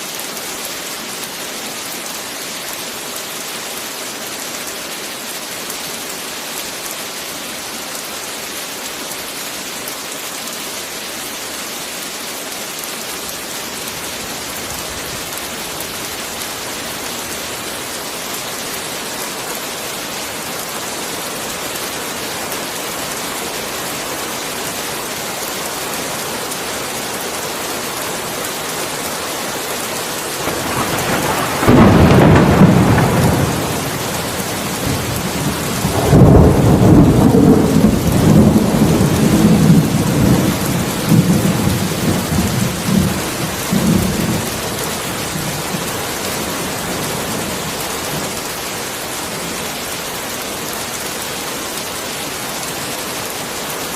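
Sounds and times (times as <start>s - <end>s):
heavy rain: 0.0s - 53.9s
thunderclap: 30.4s - 39.8s.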